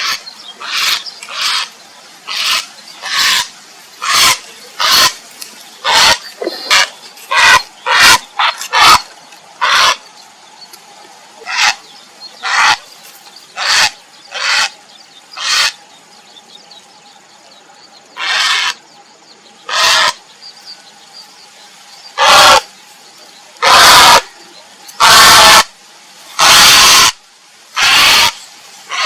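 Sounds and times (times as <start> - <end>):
heron croaking calls: 0.0 - 5.2, 5.8 - 10.0, 11.4 - 12.8, 13.6 - 14.8, 15.4 - 15.8, 18.2 - 18.8, 19.7 - 20.2, 22.2 - 22.7, 23.6 - 24.3, 25.0 - 25.7, 26.4 - 27.2, 27.8 - 29.0.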